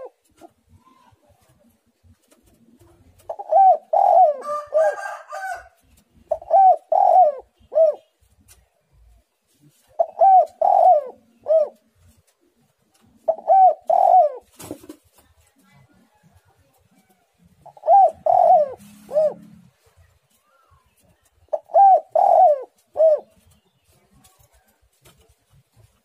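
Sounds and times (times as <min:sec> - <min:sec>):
dove cooing: 0:00.0 - 0:01.2, 0:02.5 - 0:08.1, 0:09.9 - 0:11.9, 0:13.2 - 0:14.9, 0:17.5 - 0:19.8, 0:21.5 - 0:23.5.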